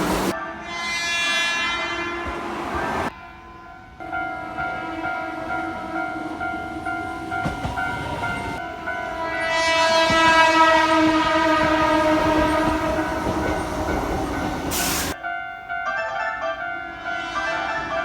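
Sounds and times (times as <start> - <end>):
train wheels on rail joints: 0.0 - 0.4, 3.9 - 15.2
train horn blast: 0.0 - 3.4, 4.4 - 6.7, 7.9 - 15.2, 16.0 - 18.0.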